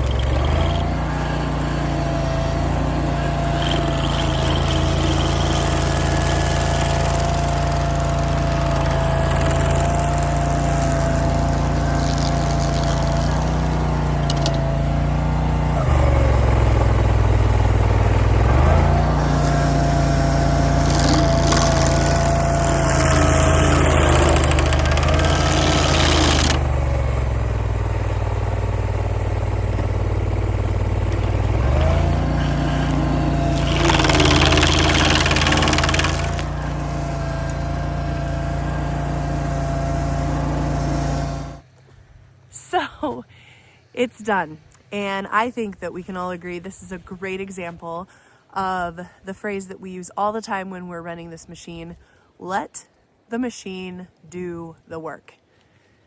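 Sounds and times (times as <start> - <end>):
rough grinding hiss: 0.0 - 26.8, 27.6 - 41.7
stump grinder engine running: 0.0 - 42.0.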